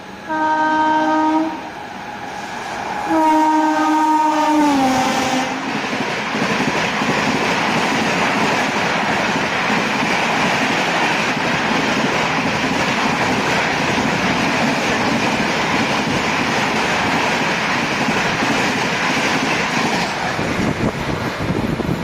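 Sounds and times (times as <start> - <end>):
train wheels rumbling on rails: 0.0 - 22.0
train horn: 0.2 - 1.8, 3.0 - 5.7.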